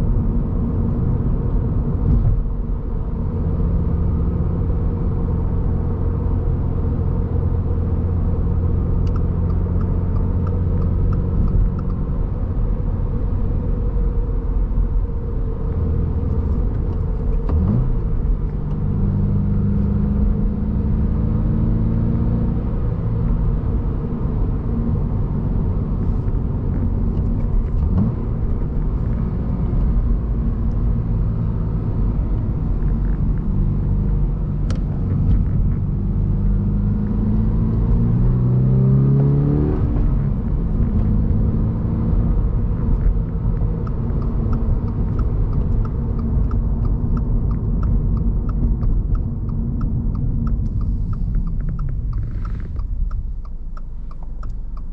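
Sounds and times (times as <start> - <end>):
car engine accelerating: 0.0 - 54.9
tyre and road noise: 6.9 - 54.9
faint regular ticking: 43.8 - 54.9.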